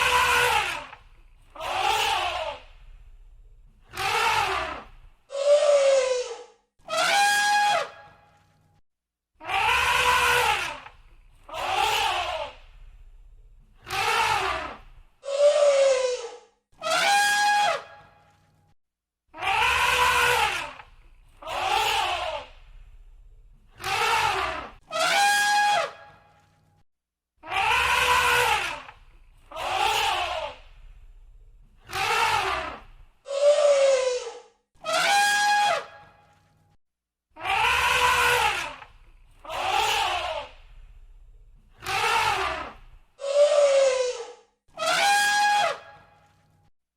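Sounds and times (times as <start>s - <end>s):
elephants trumpeting: 31.9s - 35.9s, 37.4s - 38.8s, 41.8s - 45.8s.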